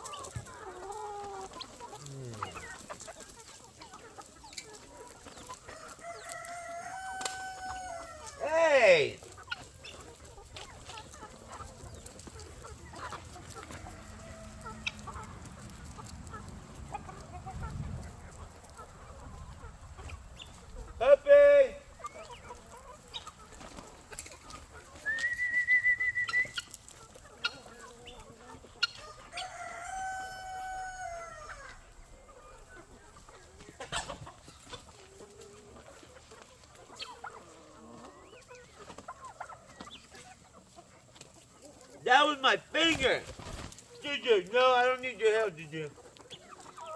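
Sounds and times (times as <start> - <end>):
chickens clucking: 0.0 - 46.9
rooster crowing: 5.7 - 8.5, 13.6 - 14.9, 29.0 - 31.9.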